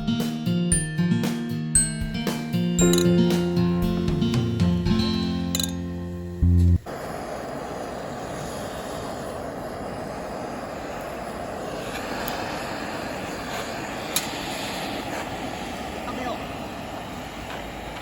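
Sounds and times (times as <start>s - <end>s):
music track: 0.0s - 6.8s
steady rushing noise: 6.8s - 18.0s.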